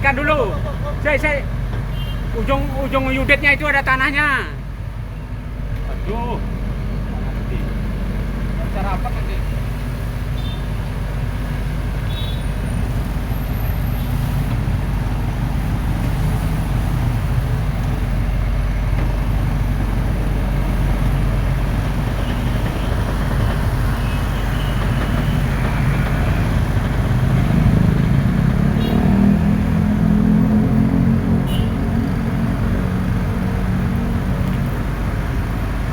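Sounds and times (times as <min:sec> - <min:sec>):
excavator diesel engine running: 0:12.6 - 0:35.9.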